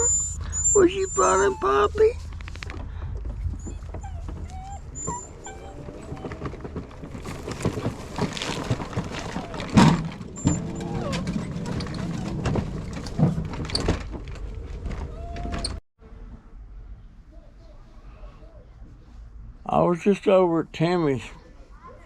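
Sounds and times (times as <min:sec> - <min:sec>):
dog whining: 0:00.0 - 0:02.3, 0:03.4 - 0:13.8, 0:15.0 - 0:15.8
rustling: 0:01.3 - 0:15.8.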